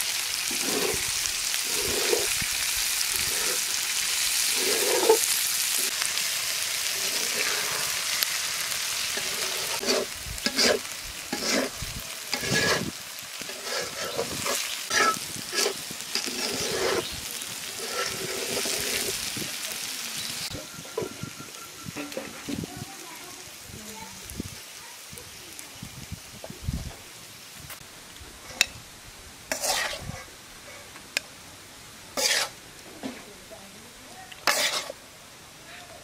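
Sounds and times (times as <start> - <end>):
vegetables sizzling in oil: 0.0 - 36.0
metal spatula scraping pan: 0.5 - 2.4, 3.2 - 6.1, 6.9 - 17.1, 17.7 - 19.2, 29.5 - 30.3, 32.2 - 33.2, 34.4 - 35.0.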